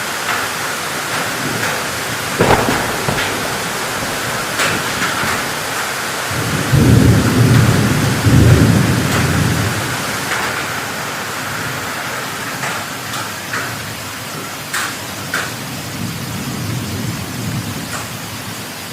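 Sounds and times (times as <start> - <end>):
heavy rain: 0.0 - 18.9
thunder rumbling: 2.1 - 10.5.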